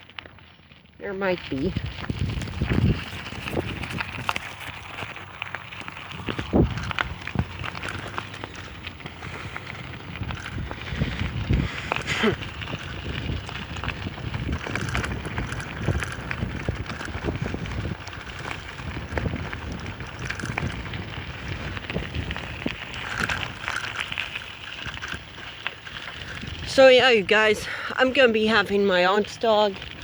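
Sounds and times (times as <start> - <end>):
bicycle tyres crunching on dirt: 0.0 - 30.0
wind noise on microphone: 1.0 - 30.0
bicycle knocks and rattles: 12.6 - 25.4.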